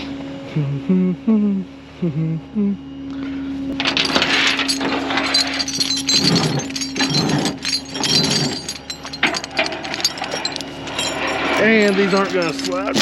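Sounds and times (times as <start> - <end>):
steady hum: 0.0 - 13.0
metal gear clinking and clanking: 3.8 - 13.0.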